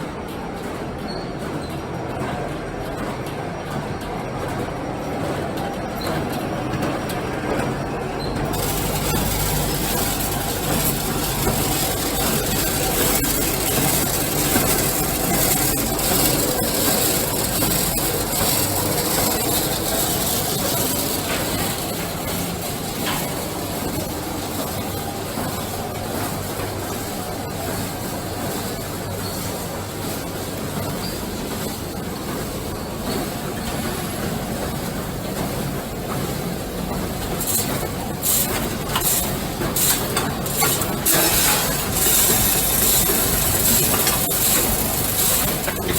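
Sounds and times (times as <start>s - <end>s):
packing machine running: 0.0s - 45.9s.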